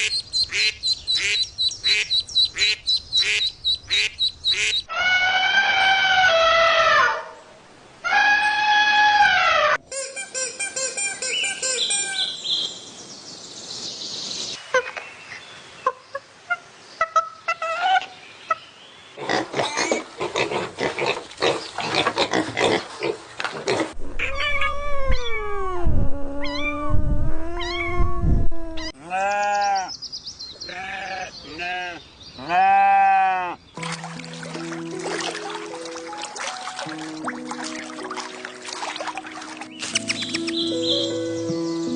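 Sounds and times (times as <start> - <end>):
cat meowing: 24.2 - 28.1.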